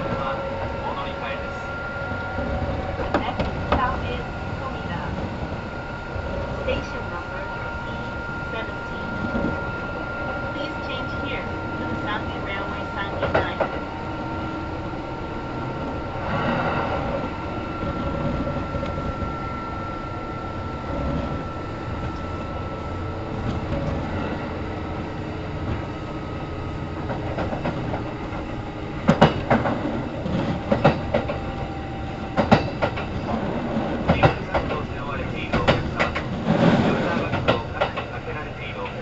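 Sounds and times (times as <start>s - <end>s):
faint train whine: 0.0s - 39.0s
train rumble inside car: 0.0s - 39.0s
wheels clicking over rail joints: 32.3s - 34.8s.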